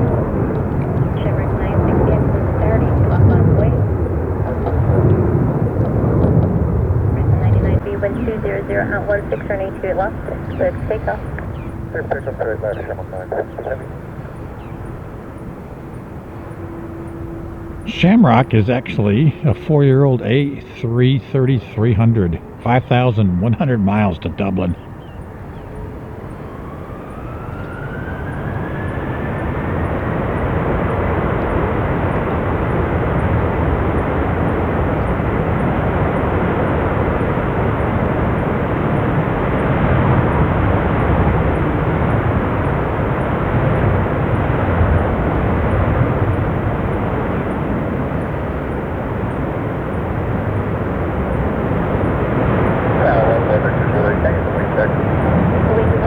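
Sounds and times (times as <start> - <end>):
jet engines spooling up: 15.7 - 24.8.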